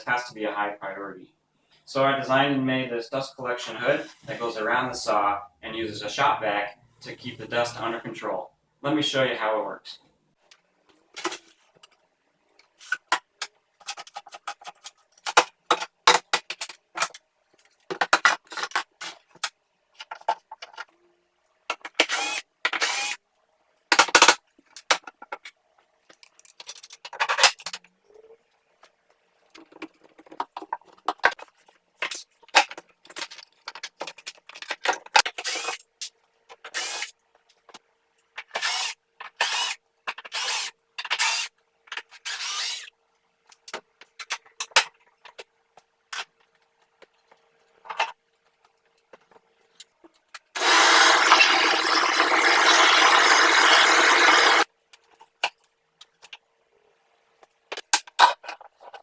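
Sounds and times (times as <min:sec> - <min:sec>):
wood rubbing and scraping: 0:50.6 - 0:54.6
power tool running loudly: 0:50.6 - 0:54.7.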